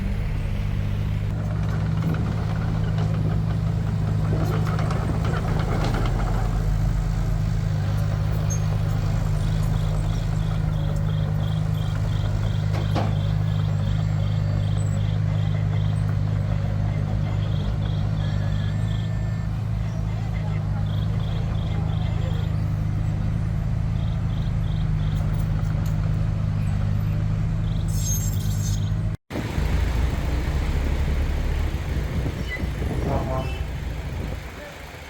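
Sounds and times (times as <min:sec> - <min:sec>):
heavy diesel engine running: 0:00.0 - 0:27.9, 0:28.9 - 0:35.0.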